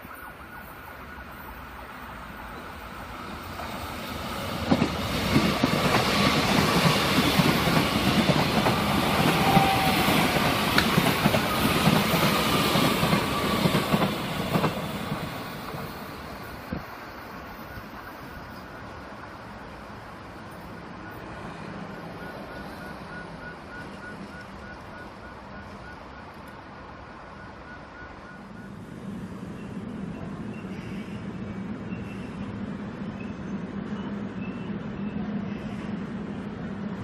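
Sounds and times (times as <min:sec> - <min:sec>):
train wheels rumbling on rails: 0:00.0 - 0:37.0
wheels clacking over rail joints: 0:04.5 - 0:16.0.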